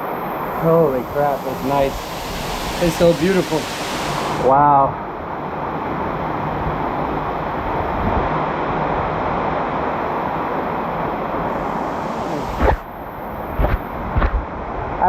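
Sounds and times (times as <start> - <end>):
waterfall rushing into pool: 0.0 - 6.4, 8.6 - 14.1.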